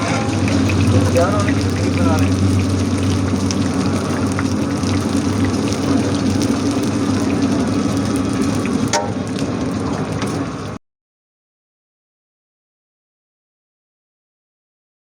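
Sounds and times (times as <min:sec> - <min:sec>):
meat sizzling and crackling: 0:00.0 - 0:10.8
steady low hum: 0:00.0 - 0:10.8.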